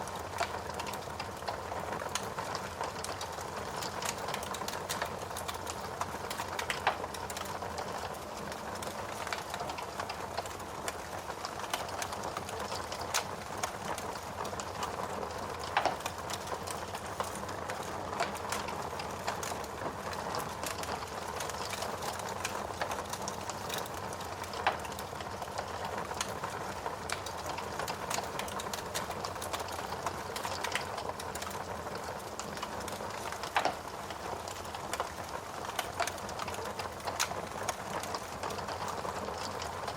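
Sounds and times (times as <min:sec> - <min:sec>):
burning logs crackling: 0:00.0 - 0:39.9.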